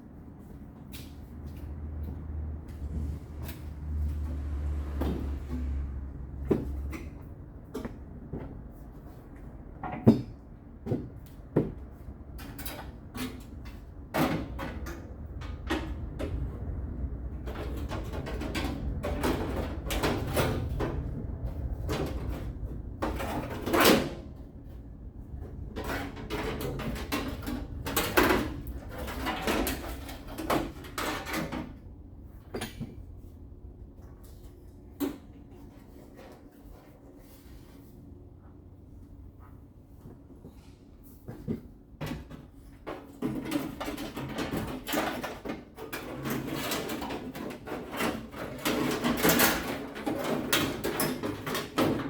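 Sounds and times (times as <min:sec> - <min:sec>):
knocks clunks and rattles: 0:02.0 - 0:09.1, 0:09.7 - 0:33.4.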